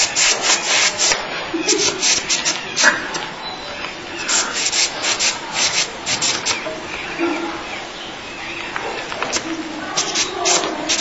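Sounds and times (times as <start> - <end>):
air hissing from tyre valve: 4.2 - 6.6.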